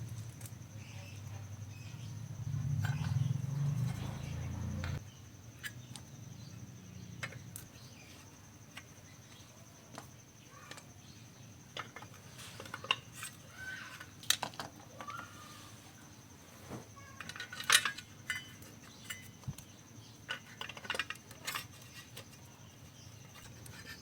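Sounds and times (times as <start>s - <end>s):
faint bird chirps: 0.8s - 11.6s, 12.3s - 14.2s, 14.8s - 17.5s
tools clicking and tapping: 4.8s - 5.0s.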